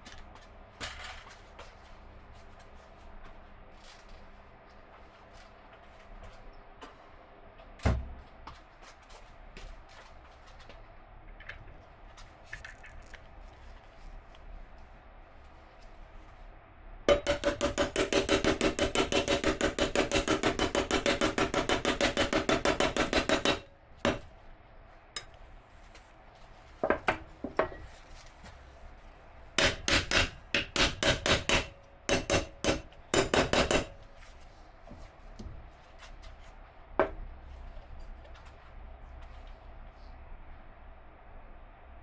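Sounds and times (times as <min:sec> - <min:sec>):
hand tool striking metal rapidly: 0:17.1 - 0:24.3, 0:29.6 - 0:34.0.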